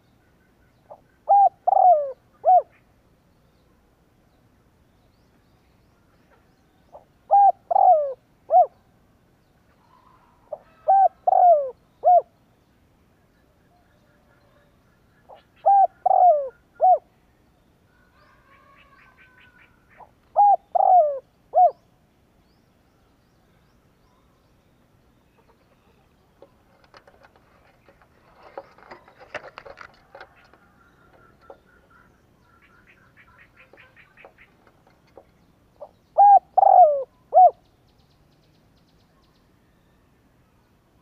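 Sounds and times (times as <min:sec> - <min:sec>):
small birds chirping: 0:00.0 - 0:40.8
dove cooing: 0:00.9 - 0:02.8, 0:06.9 - 0:08.8, 0:09.9 - 0:12.3, 0:15.3 - 0:17.1, 0:18.5 - 0:21.8, 0:25.4 - 0:37.6
rustling and clicking: 0:25.5 - 0:31.7, 0:33.6 - 0:35.4.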